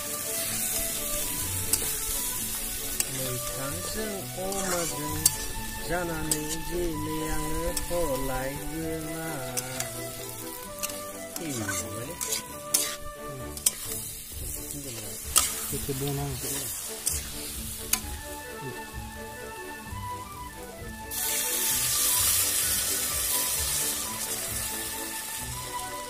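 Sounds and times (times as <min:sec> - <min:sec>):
metal spatula scraping a wok: 0:00.0 - 0:18.2
meat sizzling in a wok: 0:00.0 - 0:26.0
melodic music: 0:00.0 - 0:26.0
spatula clicking against pan: 0:13.6 - 0:13.9, 0:15.3 - 0:15.7, 0:17.0 - 0:17.3, 0:17.9 - 0:18.1.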